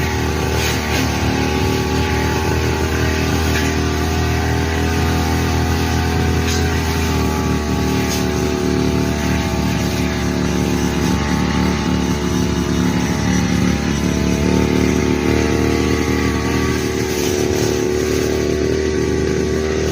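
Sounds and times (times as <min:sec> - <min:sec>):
brush cutter engine running: 0:00.0 - 0:19.9.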